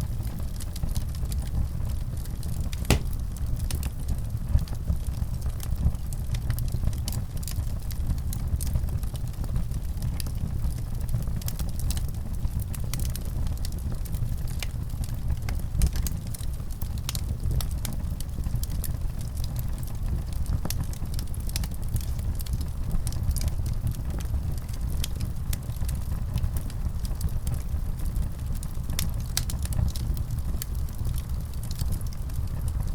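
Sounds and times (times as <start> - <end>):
wood fire crackling: 2.7 - 3.9, 18.5 - 32.9.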